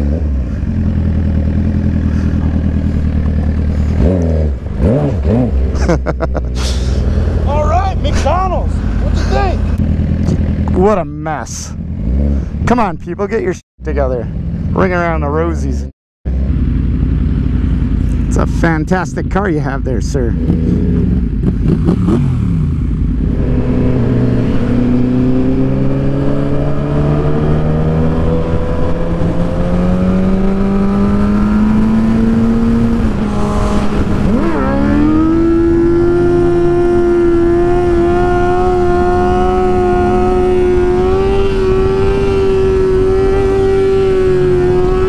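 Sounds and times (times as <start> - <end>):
motorcycle engine accelerating: 0.0 - 45.0
wind rush: 23.2 - 45.0.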